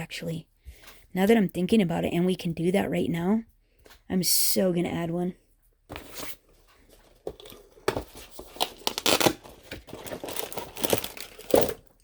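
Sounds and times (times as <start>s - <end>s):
crinkly packaging rustling: 5.9s - 12.0s.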